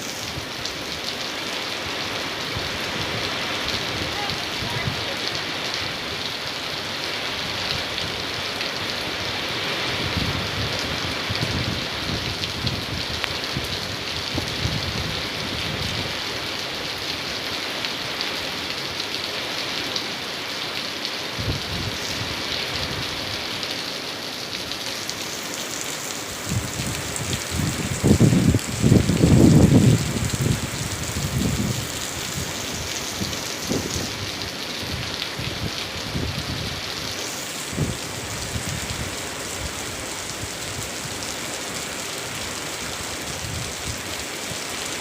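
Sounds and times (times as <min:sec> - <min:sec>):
rain pouring: 0:00.0 - 0:45.0
wind rumbling: 0:26.3 - 0:41.3.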